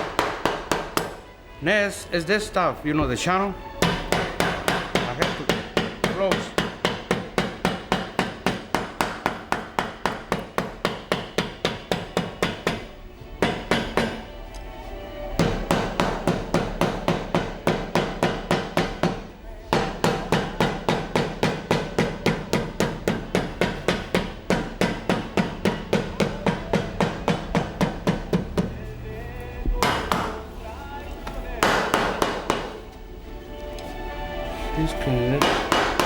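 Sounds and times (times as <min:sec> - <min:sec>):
hammer striking boot sole: 0:00.0 - 0:01.2, 0:03.8 - 0:14.3, 0:15.4 - 0:28.8, 0:29.6 - 0:30.4, 0:31.6 - 0:32.8, 0:35.4 - 0:36.0.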